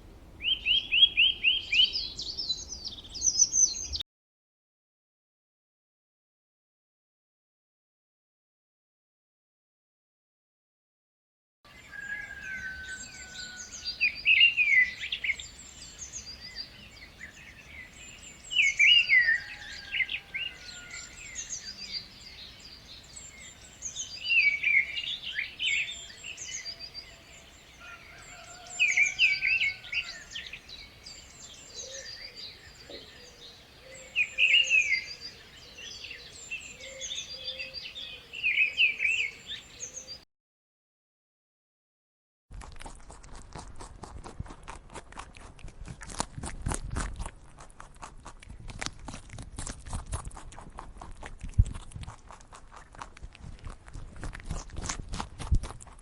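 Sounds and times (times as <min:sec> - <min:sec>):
birds twittering: 0:00.4 - 0:04.0, 0:11.7 - 0:40.2
loud chirping bird song: 0:00.4 - 0:04.0, 0:11.7 - 0:40.2.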